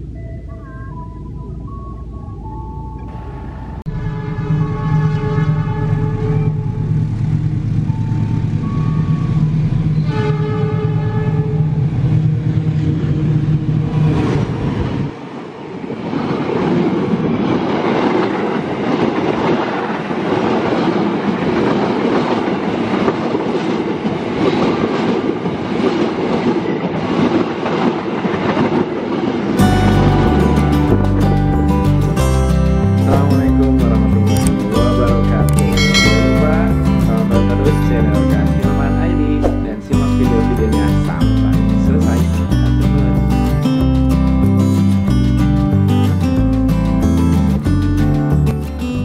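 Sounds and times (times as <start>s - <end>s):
low drone: 0.0s - 16.0s, 29.6s - 49.0s
train rumbling over rails: 0.0s - 49.0s
train horn blasts: 3.1s - 7.5s, 8.2s - 12.3s.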